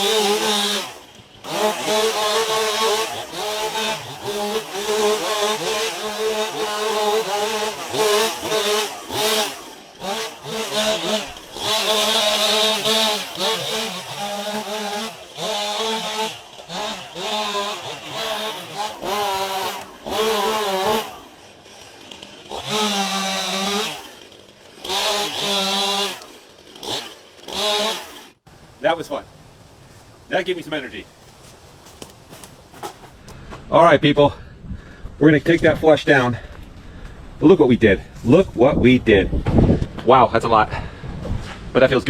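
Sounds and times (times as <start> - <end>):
small engine revving: 0.0 - 28.4.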